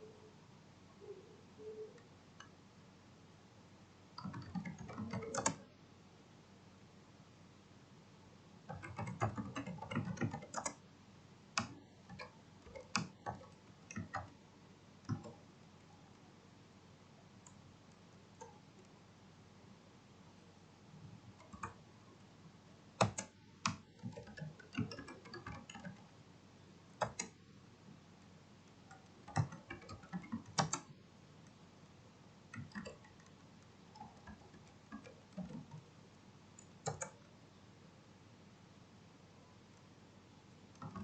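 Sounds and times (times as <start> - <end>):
mouse clicks: 11.6 - 14.4, 21.3 - 22.3, 23.0 - 26.1, 27.0 - 27.4, 28.2 - 31.6, 36.6 - 37.4.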